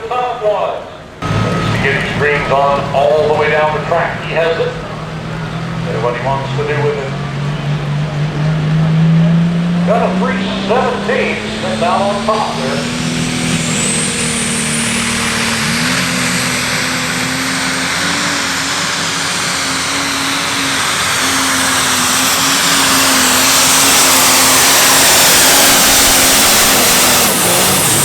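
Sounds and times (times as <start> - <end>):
diesel tractor engine at full throttle: 1.0 - 28.0
high turbo whistle: 1.2 - 28.0.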